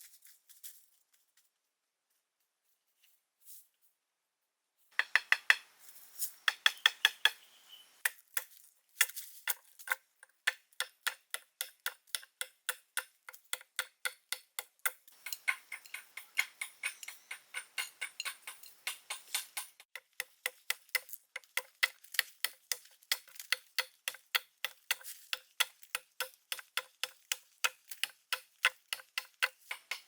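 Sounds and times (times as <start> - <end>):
sharp evenly spaced taps: 5.0 - 5.7, 6.4 - 7.4, 10.4 - 30.0.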